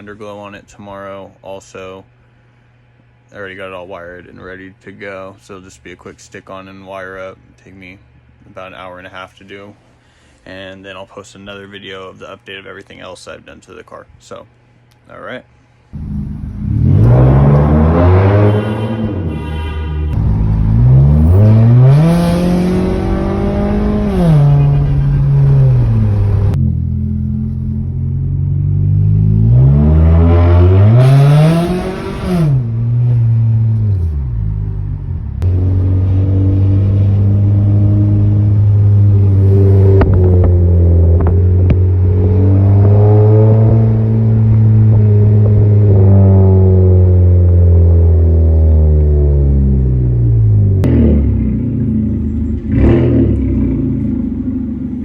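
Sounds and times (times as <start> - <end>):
car engine revving through exhaust: 16.0 - 55.0.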